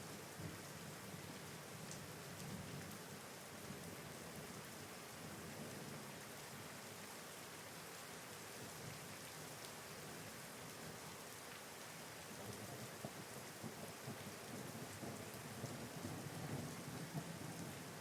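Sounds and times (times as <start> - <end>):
rain pattering on surfaces: 0.0 - 18.0.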